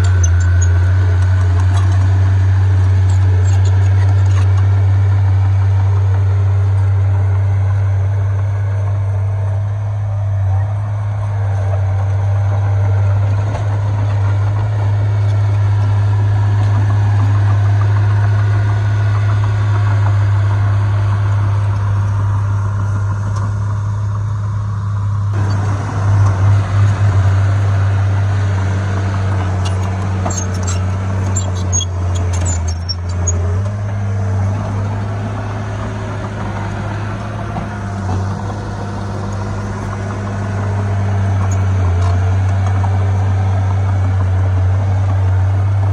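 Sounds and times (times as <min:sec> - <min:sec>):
high squeaks and clicks: 0:00.0 - 0:04.7, 0:25.4 - 0:42.2
diesel engine droning: 0:00.0 - 0:45.9.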